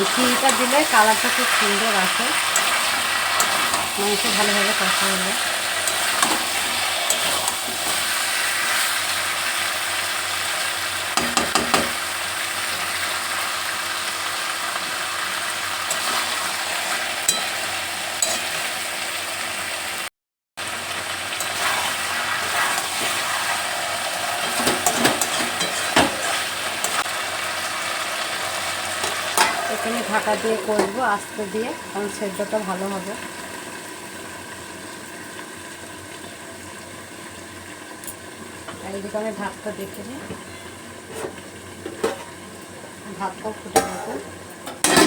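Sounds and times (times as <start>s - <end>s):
chicken sizzling in oil: 0.0s - 45.0s
spatula scraping and clacking: 2.5s - 3.9s, 5.8s - 8.0s, 24.4s - 27.1s.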